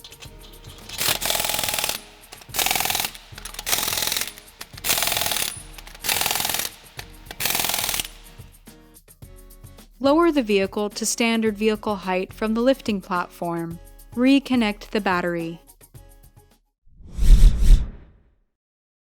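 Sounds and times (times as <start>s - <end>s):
impact wrench rattling bursts: 0.0s - 8.6s.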